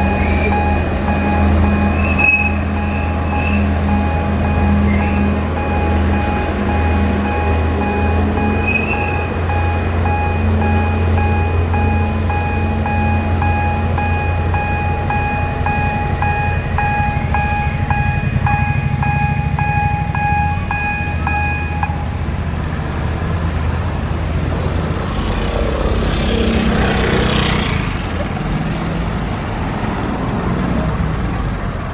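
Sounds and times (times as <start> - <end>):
level crossing warning bell: 0.0 - 22.2
train engine rumble: 0.0 - 31.9.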